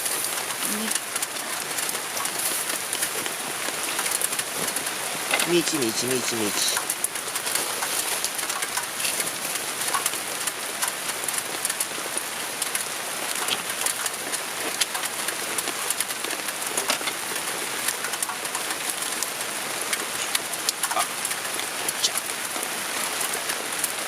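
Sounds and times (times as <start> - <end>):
rain on a tarp: 0.0 - 24.0
raindrops ticking: 0.0 - 24.0.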